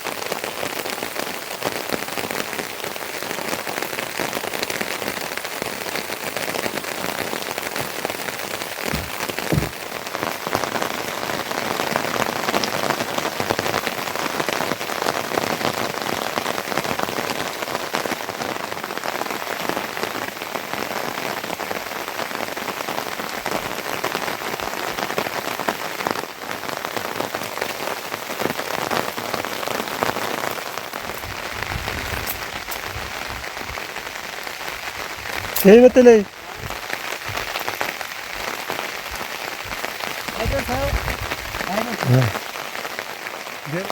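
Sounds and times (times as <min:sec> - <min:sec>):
steady rain falling: 0:00.0 - 0:43.9
low knocks: 0:08.9 - 0:09.9.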